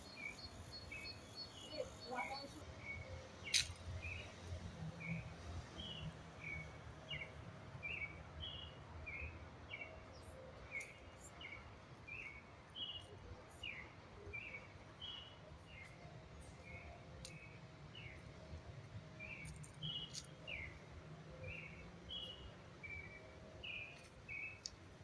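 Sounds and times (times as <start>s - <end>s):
bird chirping: 0.0s - 2.6s.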